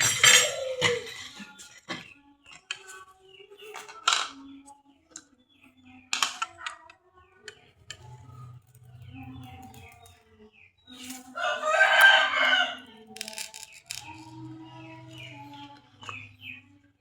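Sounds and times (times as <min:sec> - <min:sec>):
metallic clatter: 0:00.0 - 0:02.0
rooster crowing: 0:11.4 - 0:12.9.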